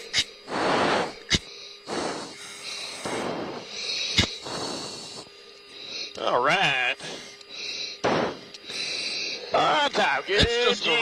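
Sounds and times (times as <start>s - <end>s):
heavy breathing into a mask: 0.0s - 6.2s, 7.0s - 9.6s
faint steady hum: 0.0s - 11.0s.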